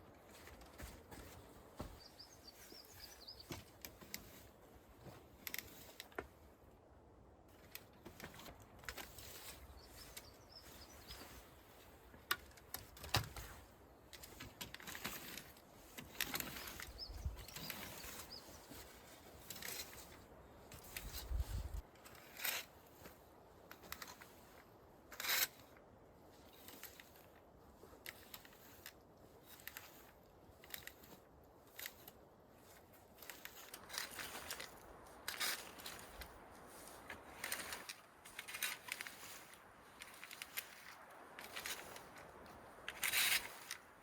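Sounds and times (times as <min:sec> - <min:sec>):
handling clicks and rustles: 0:00.0 - 0:06.5, 0:07.5 - 0:44.0
faint bird chirps: 0:02.0 - 0:03.5.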